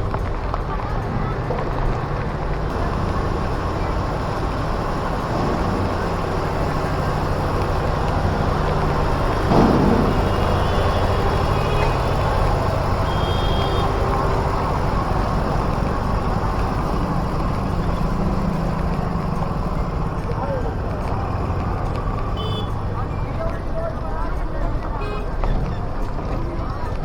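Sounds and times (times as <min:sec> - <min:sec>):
vehicle rumbling: 0:00.0 - 0:27.0
sharp knock: 0:09.4 - 0:12.5.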